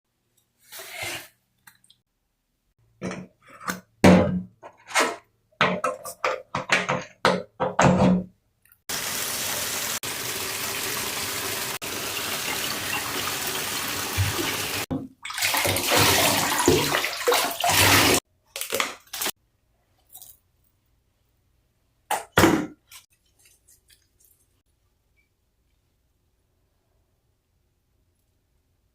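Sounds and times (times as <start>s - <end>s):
water running into a bathtub: 8.9s - 19.4s.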